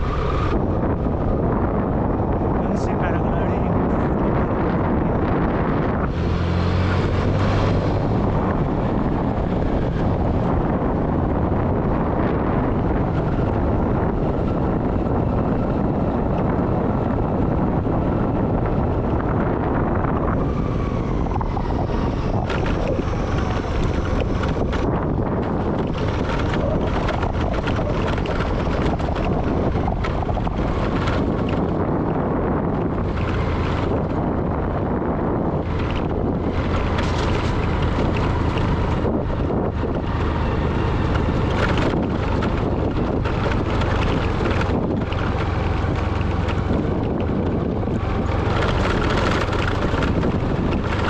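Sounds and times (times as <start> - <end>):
vehicle ride rumble: 0.0 - 51.0
wind buffeting microphone: 0.0 - 51.0
sharp knocks and clicks: 21.4 - 31.8, 35.6 - 39.0.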